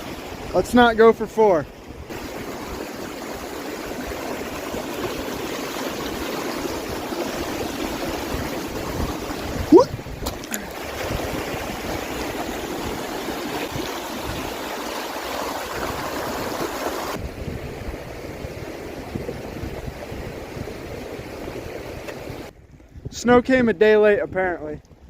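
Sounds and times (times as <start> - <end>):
river rushing: 0.0 - 17.2.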